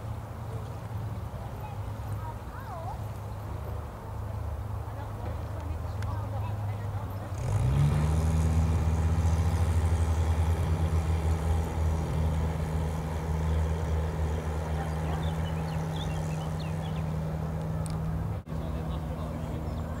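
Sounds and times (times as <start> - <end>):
car engine drone: 5.6 - 20.0.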